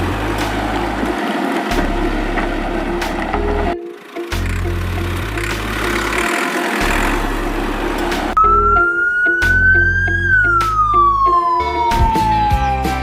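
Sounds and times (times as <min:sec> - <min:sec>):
background music with bass line: 0:00.0 - 0:13.0
high siren-like tone: 0:08.4 - 0:13.0.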